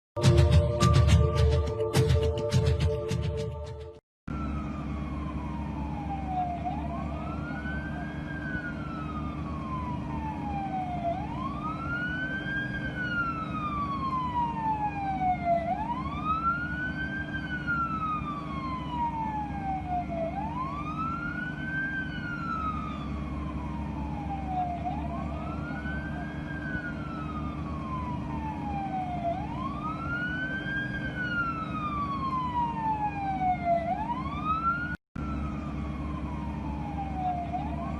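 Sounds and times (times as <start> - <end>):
emergency siren wailing: 0.2 - 37.9
low engine rumble: 16.0 - 33.5, 34.2 - 37.9.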